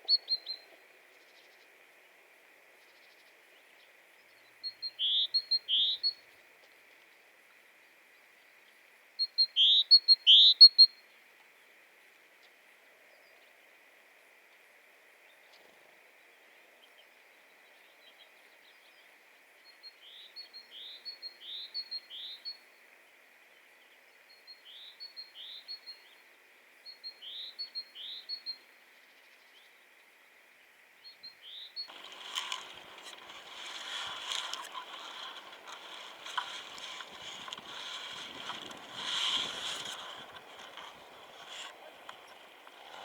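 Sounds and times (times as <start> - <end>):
songbird whistled song: 0.0 - 0.7, 4.6 - 6.2, 9.2 - 10.9.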